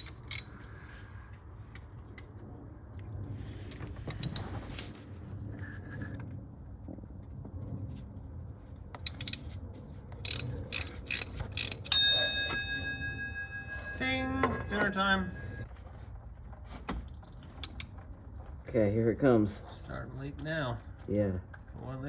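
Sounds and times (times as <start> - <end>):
socket ratchet clicking: 0.0 - 0.5, 4.2 - 4.9, 9.0 - 9.5, 10.2 - 12.0, 17.6 - 17.9.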